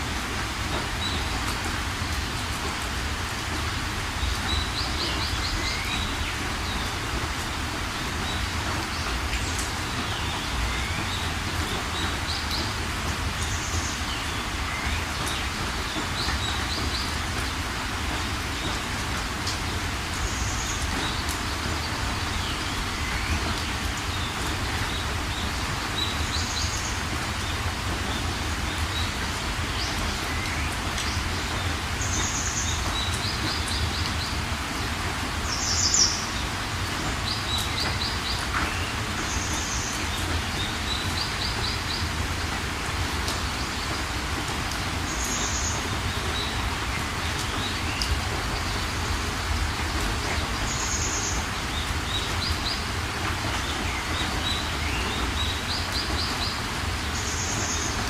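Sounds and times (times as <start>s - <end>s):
steady rain falling: 0.0s - 58.0s
birds chirping: 45.0s - 58.0s.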